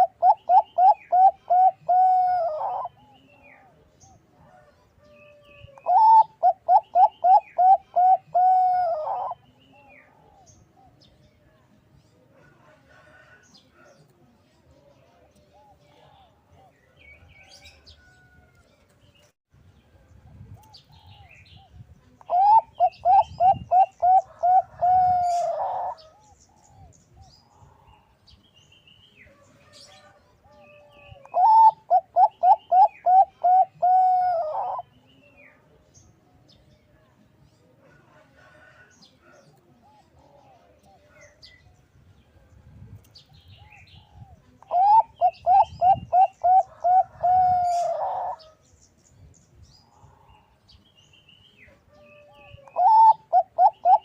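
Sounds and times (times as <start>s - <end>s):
dove cooing: 0.0s - 3.8s, 5.3s - 11.0s, 22.3s - 26.9s, 29.9s - 34.9s, 43.6s - 48.6s, 51.9s - 54.0s.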